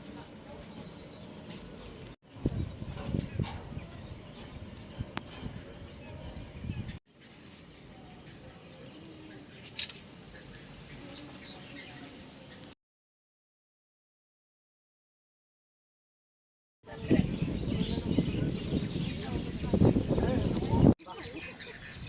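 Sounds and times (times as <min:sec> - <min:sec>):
insects chirring: 0:00.0 - 0:12.8.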